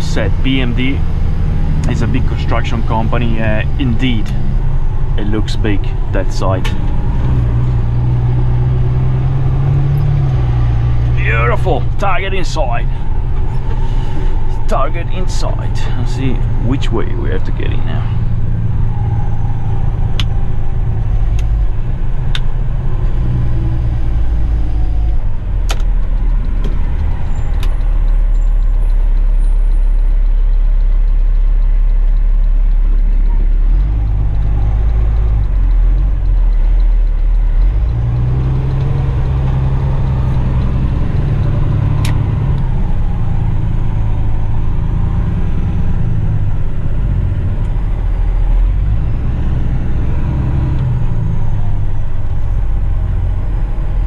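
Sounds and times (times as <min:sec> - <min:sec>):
diesel truck engine rumbling: 0:00.0 - 0:54.0
sharp clicks: 0:25.1 - 0:45.0.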